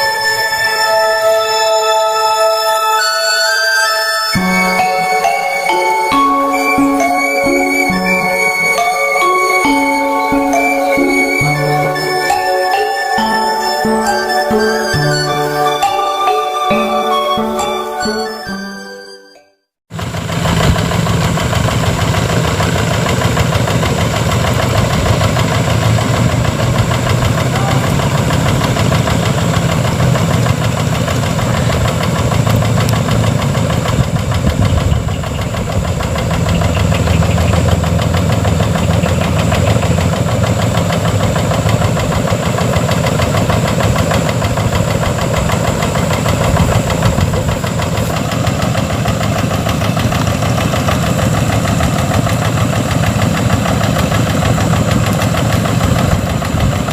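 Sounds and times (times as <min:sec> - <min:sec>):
tractor engine knocking clatter: 0:19.9 - 0:56.9.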